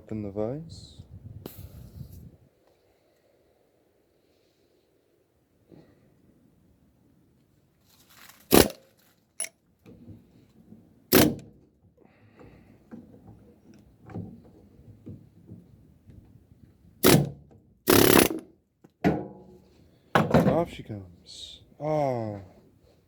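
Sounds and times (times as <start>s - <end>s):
sharp knocks on metal: 19.0s - 19.4s.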